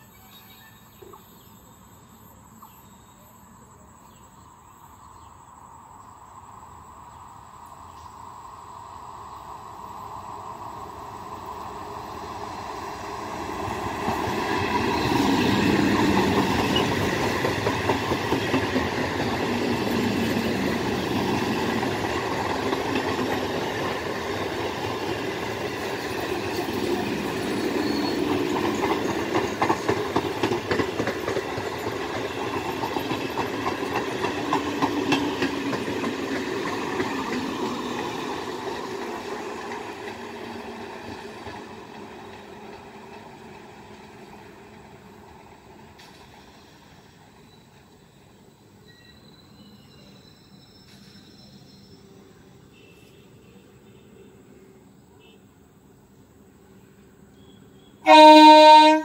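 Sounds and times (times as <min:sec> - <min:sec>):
train wheels on rails: 0:00.0 - 0:53.5
clickety-clack over rail joints: 0:13.5 - 0:47.9.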